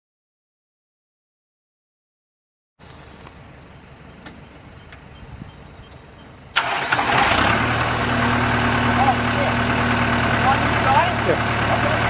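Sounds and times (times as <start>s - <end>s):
diesel tractor engine idling: 2.8s - 12.0s.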